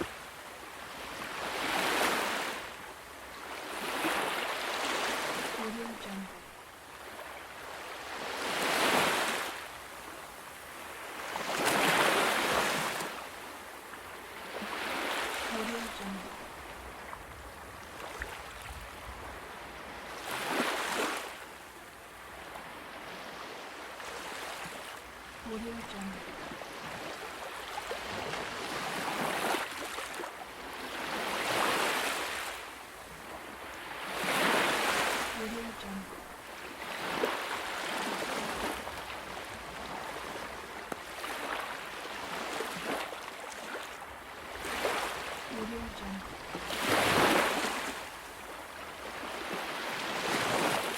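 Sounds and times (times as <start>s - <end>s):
ocean waves breaking: 0.0s - 21.6s, 22.2s - 50.9s
ocean waves washing in: 44.4s - 50.9s.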